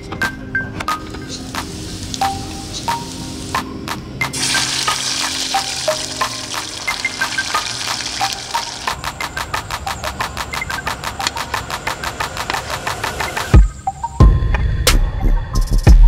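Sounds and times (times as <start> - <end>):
fast regular ticking: 1.5 - 13.8
potatoes sizzling in frying pan: 4.4 - 9.0.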